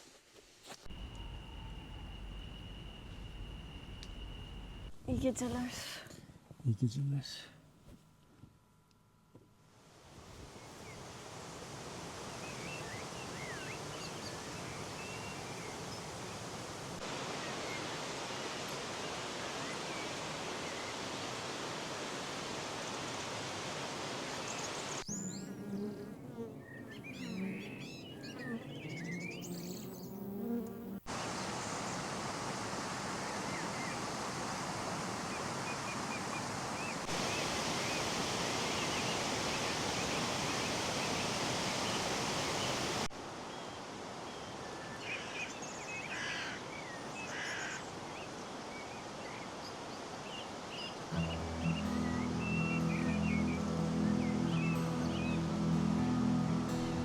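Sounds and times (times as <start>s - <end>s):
flowing water rushing: 10.0s - 26.3s, 31.0s - 44.2s
birds chirping and singing: 25.0s - 30.5s, 51.2s - 57.0s.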